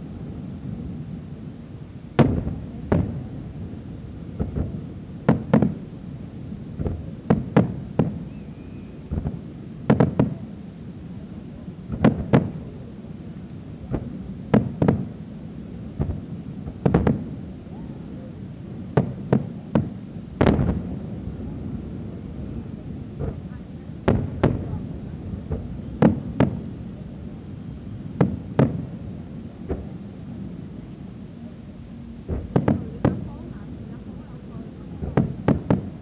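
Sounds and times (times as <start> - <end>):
fireworks bangs: 2.2 - 3.4, 4.3 - 5.9, 6.8 - 8.4, 9.1 - 10.5, 11.9 - 12.8, 13.8 - 15.2, 16.0 - 17.9, 18.8 - 30.1, 32.2 - 36.0.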